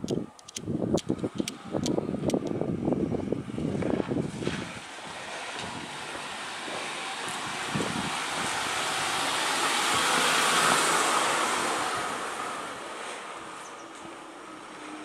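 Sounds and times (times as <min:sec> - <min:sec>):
faint clicks: 0:00.0 - 0:02.5
vehicle passing by: 0:01.0 - 0:15.0.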